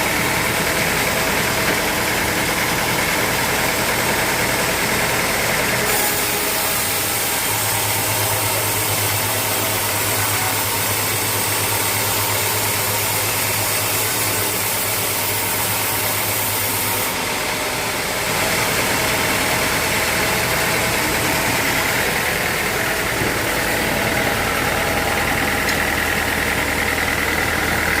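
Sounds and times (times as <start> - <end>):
sawmill machinery humming: 0.0 - 28.0
hiss: 5.9 - 17.1.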